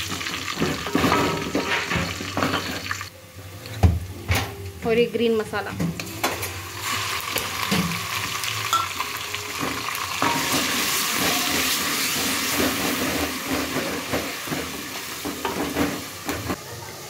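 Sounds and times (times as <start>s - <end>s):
masala paste sizzling in oil: 6.6s - 16.5s.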